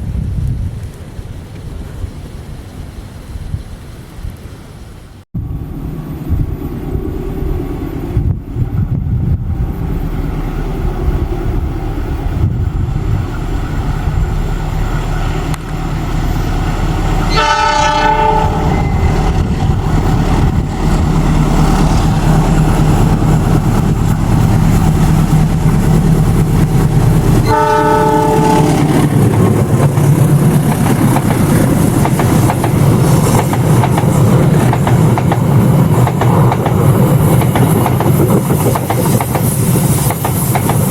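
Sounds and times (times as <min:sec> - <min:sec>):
diesel locomotive engine rumbling: 0:05.4 - 0:40.9
train horn blasts: 0:17.2 - 0:19.2, 0:27.4 - 0:28.9.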